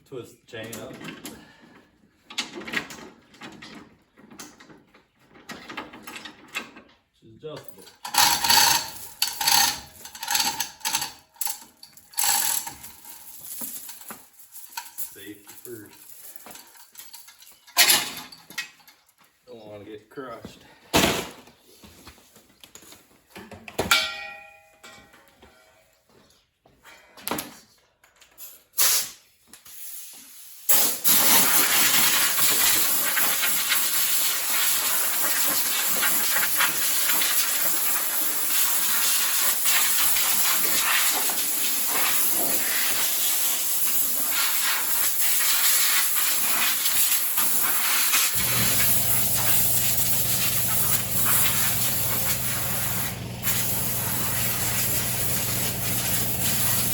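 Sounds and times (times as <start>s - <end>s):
loud hissing spray: 31.0s - 56.9s
low steady hum: 48.4s - 56.9s.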